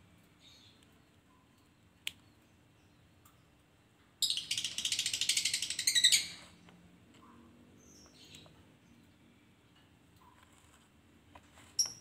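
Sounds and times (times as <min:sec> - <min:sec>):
bird rapid chattering call: 0:04.2 - 0:06.4.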